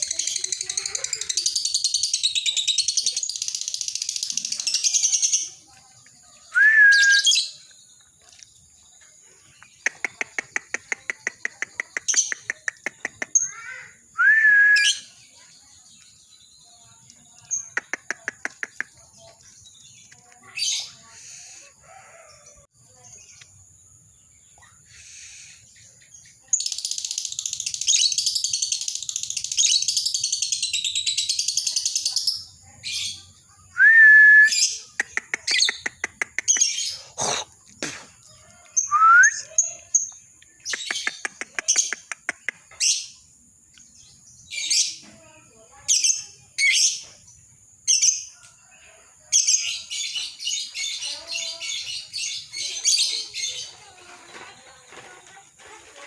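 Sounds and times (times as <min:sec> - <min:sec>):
bird shrill chattering song: 0:00.0 - 0:05.7, 0:06.4 - 0:07.9, 0:09.4 - 0:21.7, 0:24.4 - 0:38.0, 0:38.7 - 0:45.0, 0:45.9 - 0:47.3, 0:49.4 - 0:54.3
bird whistled notes: 0:06.5 - 0:07.6, 0:14.2 - 0:15.1, 0:38.8 - 0:39.6
bird clicking trills: 0:09.6 - 0:13.8, 0:17.5 - 0:19.4, 0:34.8 - 0:36.9, 0:38.8 - 0:42.9.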